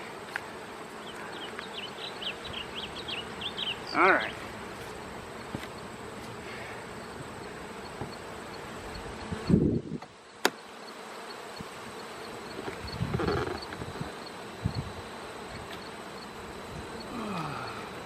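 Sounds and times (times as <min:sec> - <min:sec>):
bees buzzing: 0:00.0 - 0:18.0.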